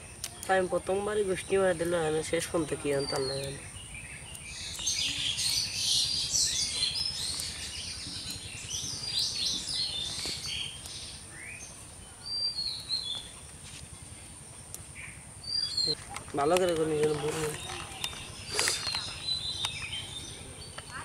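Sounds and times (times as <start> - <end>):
small birds chirping: 0.0 - 21.0
steady high-pitched whine: 0.0 - 21.0.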